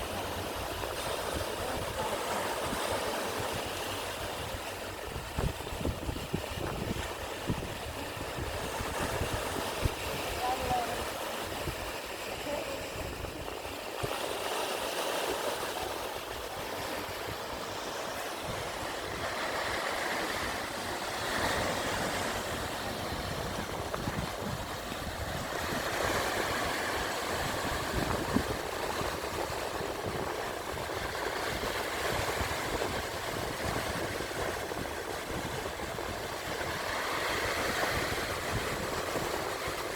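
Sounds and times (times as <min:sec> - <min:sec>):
sea waves washing in: 0:00.0 - 0:39.9
wind rumbling on microphone: 0:00.0 - 0:39.9.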